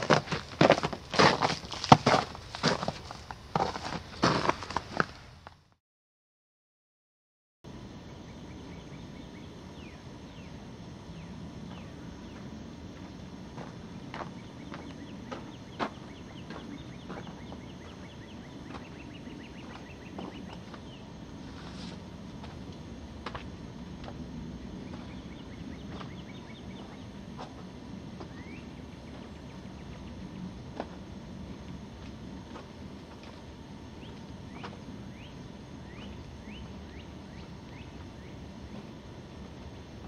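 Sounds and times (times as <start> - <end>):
low outdoor background noise: 7.7 - 40.0
steady low rumble: 7.7 - 40.0
birds chirping: 8.0 - 12.6, 13.6 - 21.3, 24.6 - 27.6, 28.2 - 30.6, 33.8 - 39.0.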